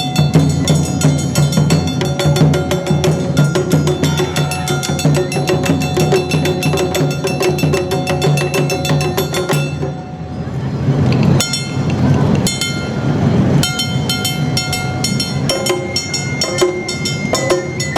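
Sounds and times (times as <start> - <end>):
sustained ringing tones: 0.0 - 10.7, 11.4 - 17.9
metallic and wooden strikes: 13.6 - 17.9.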